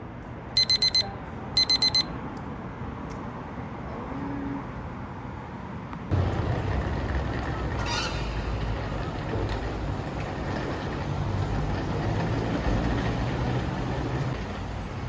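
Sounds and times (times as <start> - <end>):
electronic alarm beeping: 0.6 - 2.1.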